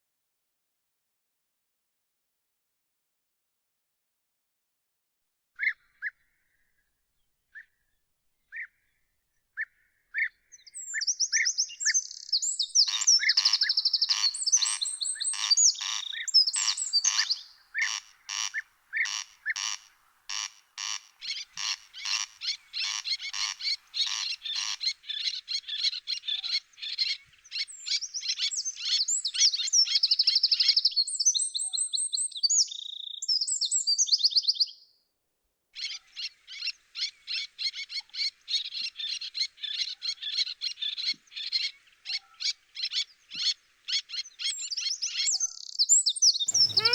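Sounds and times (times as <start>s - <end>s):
songbirds singing: 9.6s - 34.8s, 35.8s - 46.9s
repeated loud bird notes: 46.5s - 46.9s.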